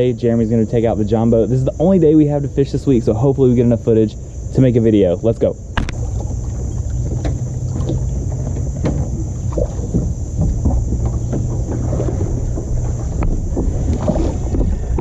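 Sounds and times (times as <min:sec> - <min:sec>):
wind rumbling on microphone: 0:05.5 - 0:15.0
paddle knocking on hull: 0:05.8 - 0:15.0.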